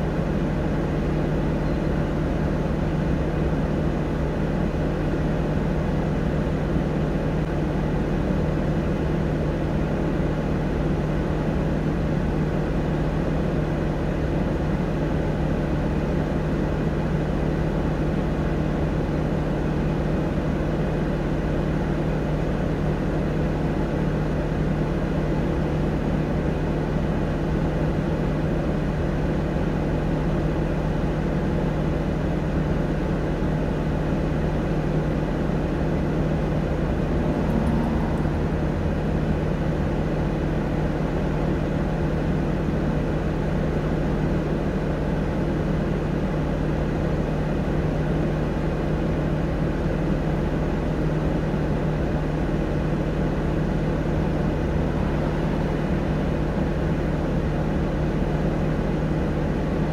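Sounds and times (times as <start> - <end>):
vehicle engine idling: 32.6 - 47.4.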